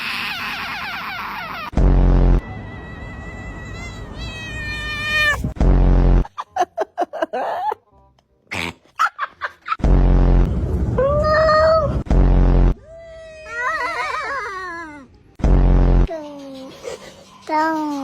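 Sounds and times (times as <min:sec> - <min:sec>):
cats meowing: 0:02.6 - 0:05.6
loud low steady sound: 0:09.8 - 0:12.8.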